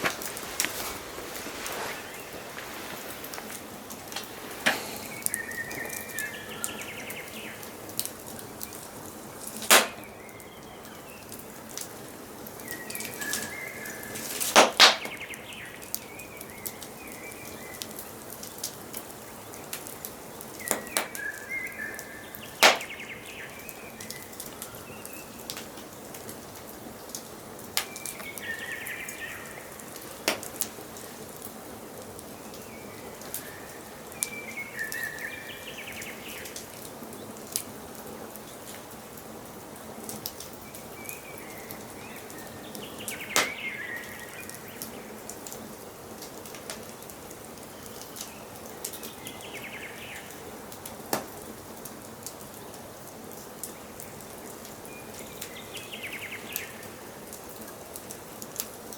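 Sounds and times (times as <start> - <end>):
wood fire crackling and popping: 0.0 - 49.5, 50.1 - 58.9
songbird warbling: 4.6 - 7.6.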